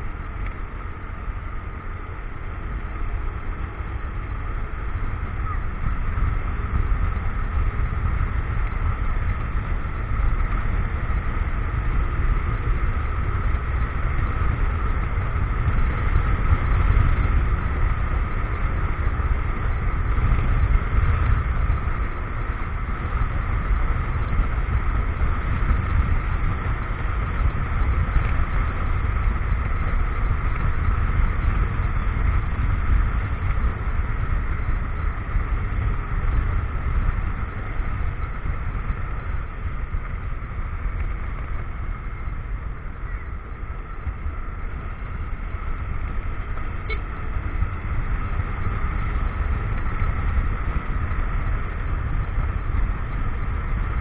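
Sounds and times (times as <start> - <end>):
motorcycle engine running: 0.0 - 54.0
road noise: 0.0 - 54.0
wind noise: 0.0 - 54.0.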